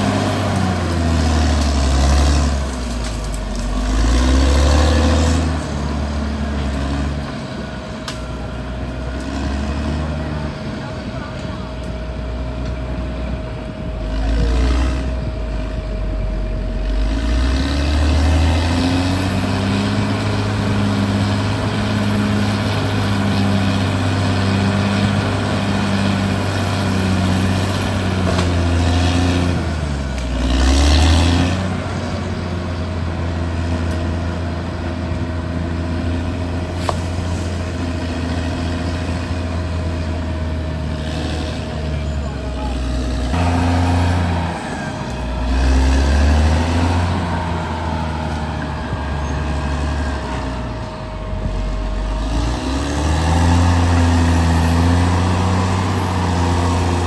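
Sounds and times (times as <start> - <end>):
bulldozer diesel engine under load: 0.0 - 57.0
steady thin whine: 10.1 - 26.6, 40.6 - 57.0.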